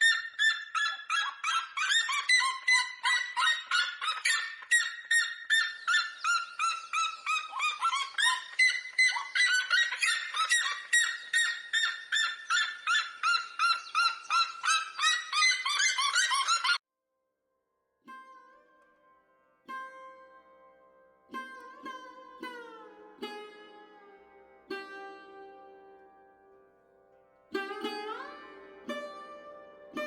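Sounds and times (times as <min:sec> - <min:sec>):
bird rapid yelping calls: 0:00.0 - 0:16.8.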